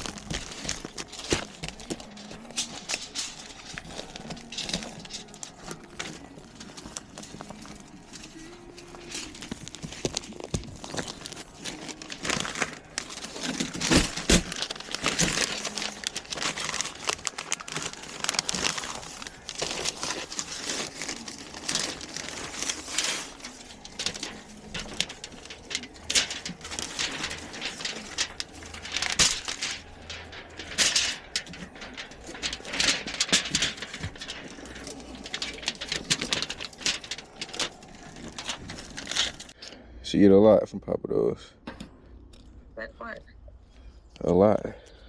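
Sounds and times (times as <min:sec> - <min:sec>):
rustling and crinkling: 0:00.0 - 0:39.6.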